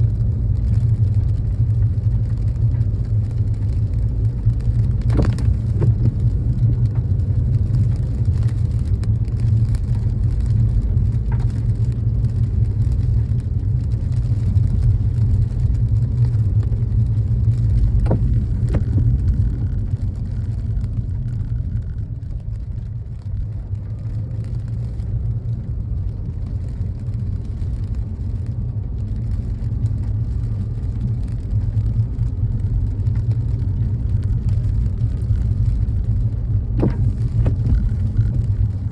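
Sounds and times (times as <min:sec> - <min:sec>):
car driving rumble: 0:00.0 - 0:38.9.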